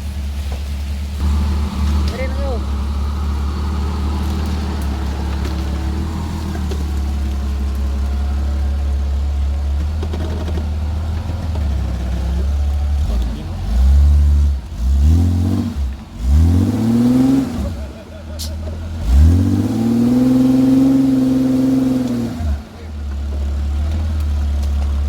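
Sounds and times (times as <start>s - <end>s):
off-road vehicle engine running: 0.0s - 25.0s
engine revving hard: 1.2s - 22.9s.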